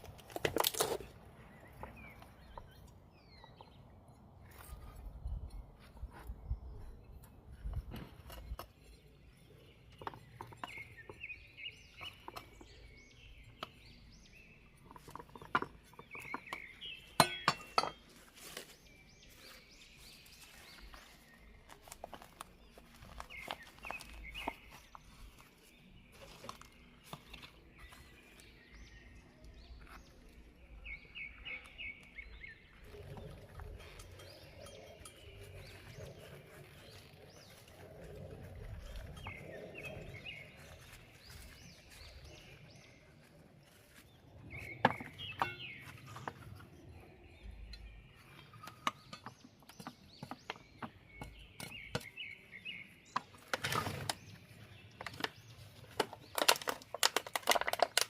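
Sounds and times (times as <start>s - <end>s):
small birds chirping: 0.0s - 58.0s
glass and utensil clinks: 17.2s - 18.0s, 45.4s - 45.6s.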